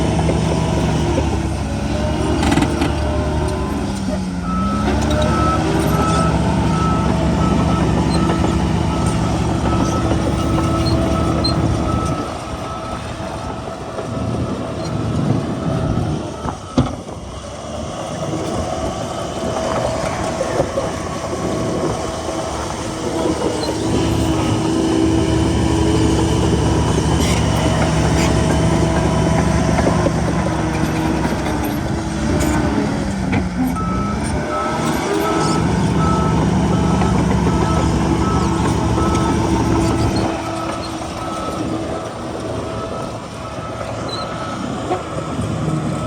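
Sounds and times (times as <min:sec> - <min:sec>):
heavy diesel machinery engine: 0:00.0 - 0:46.0
reversing alarm beeping: 0:02.0 - 0:17.1, 0:33.7 - 0:46.0.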